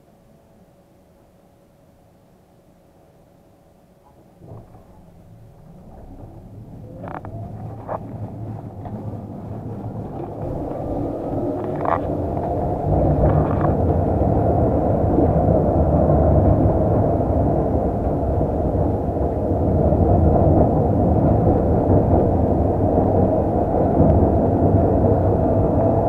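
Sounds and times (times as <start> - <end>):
faint tram whine: 0.0 - 26.0
tram rumbling on track: 4.0 - 26.0.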